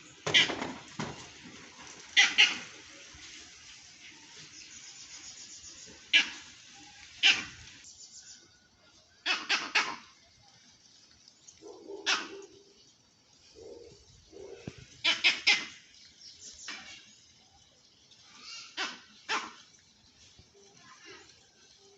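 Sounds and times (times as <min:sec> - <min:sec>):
dog barking: 0:11.6 - 0:12.6, 0:13.6 - 0:15.7, 0:18.8 - 0:19.6.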